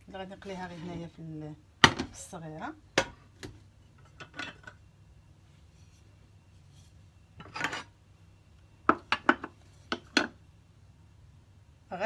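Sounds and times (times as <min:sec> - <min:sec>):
cookware scraping clatter: 0:07.4 - 0:07.9.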